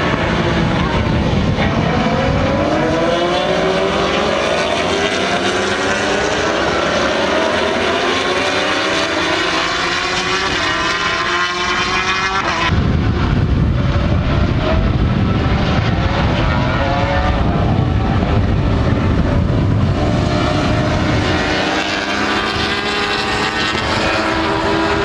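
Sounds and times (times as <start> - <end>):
racing motorcycles accelerating: 0.0 - 25.0.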